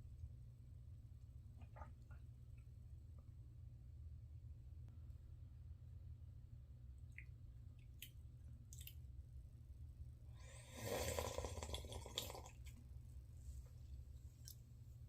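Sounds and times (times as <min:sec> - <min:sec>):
slurp of hot coffee: 0:10.4 - 0:12.6.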